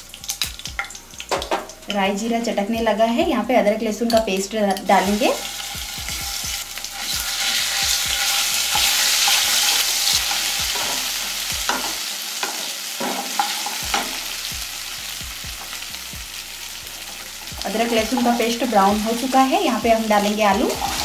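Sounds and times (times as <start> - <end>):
paste sizzling in hot oil: 4.8 - 21.0
spatula scraping a pan: 5.5 - 14.2.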